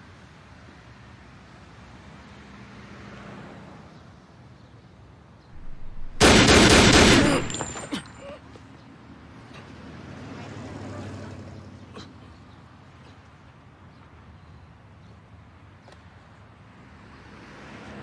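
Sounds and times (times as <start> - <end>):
low steady background noise: 4.3 - 9.5
gunfire burst: 5.6 - 7.9.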